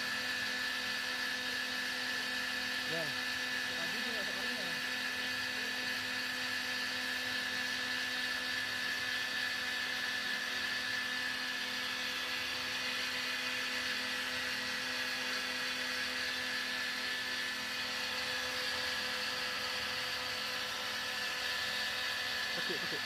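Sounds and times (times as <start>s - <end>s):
cotton candy machine whirring: 0.0s - 23.0s.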